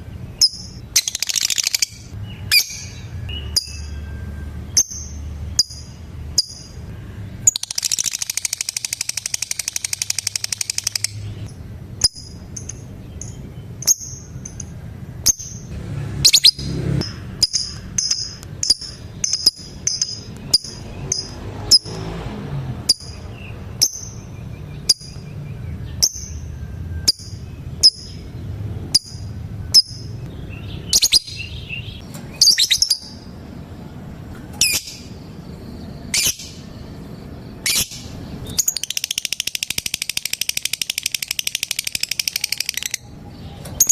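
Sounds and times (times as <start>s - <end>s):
lovebird chirping and calling: 0.3s - 22.0s, 22.9s - 33.3s, 34.6s - 43.9s.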